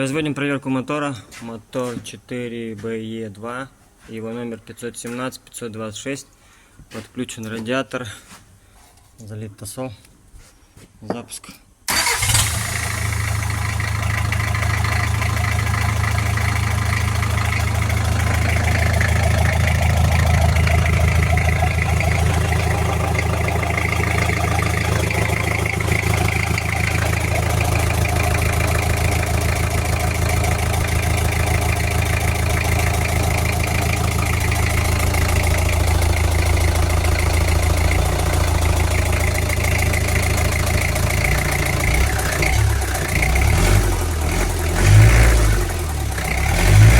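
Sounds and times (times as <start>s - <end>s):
diesel engine starting and idling: 11.9s - 46.9s.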